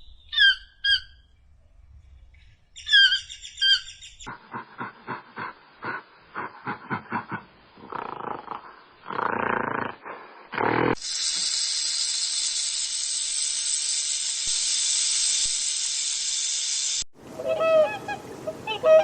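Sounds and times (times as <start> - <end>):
animal hissing: 7.8 - 17.0.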